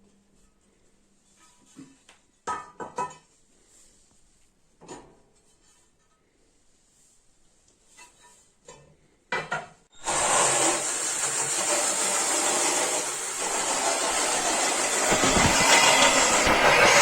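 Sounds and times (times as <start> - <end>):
tool rasping on stove: 10.0 - 17.0
sharp knocks: 13.4 - 17.0.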